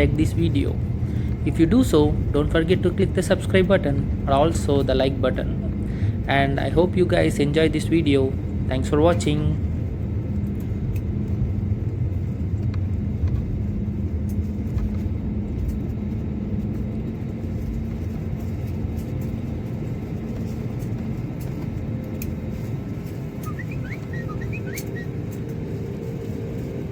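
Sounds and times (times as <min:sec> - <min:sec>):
jet engines rumbling: 0:00.0 - 0:26.9
wheels on runway: 0:07.3 - 0:26.9.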